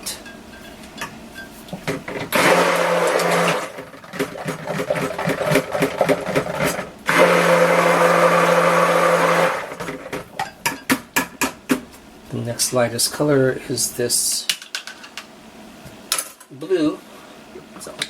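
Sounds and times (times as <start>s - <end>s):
stick blender mixing: 1.9s - 10.4s
blender clinking against bowl: 2.3s - 6.5s.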